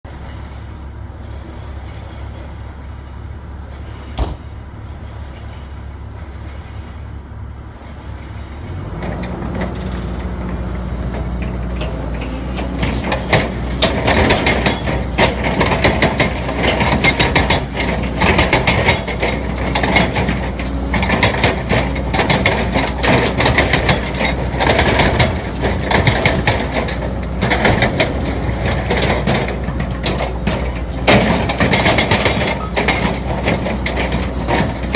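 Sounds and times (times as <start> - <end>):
excavator diesel engine: 0.0 - 34.9
metallic rattling and clanking: 7.9 - 34.9.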